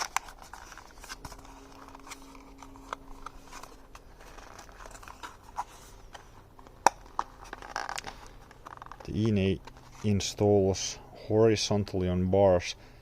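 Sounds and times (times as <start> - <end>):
packaging rustling: 0.0 - 10.2.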